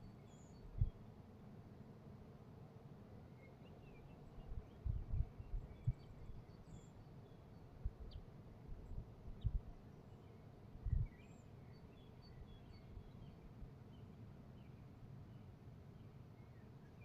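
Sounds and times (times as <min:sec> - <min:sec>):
faint bird chirps: 0:00.0 - 0:01.1, 0:03.4 - 0:14.8.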